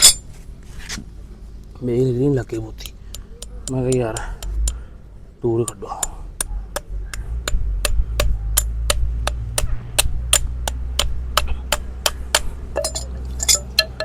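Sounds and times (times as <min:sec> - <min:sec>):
steady low hum: 0:00.0 - 0:14.0
hammer tapping: 0:02.8 - 0:04.8, 0:05.6 - 0:14.0.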